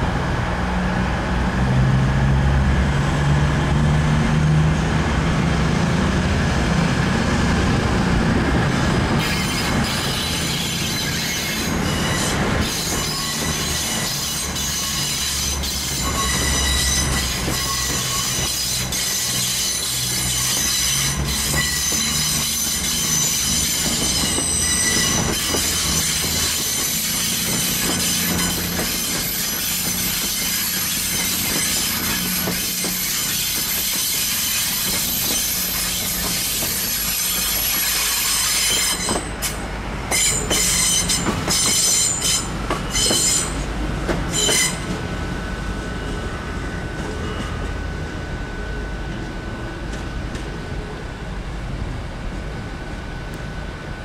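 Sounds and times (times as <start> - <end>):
train engine hum: 0.0 - 54.0
high-pitched wheel squeal: 9.2 - 43.7, 44.3 - 45.0.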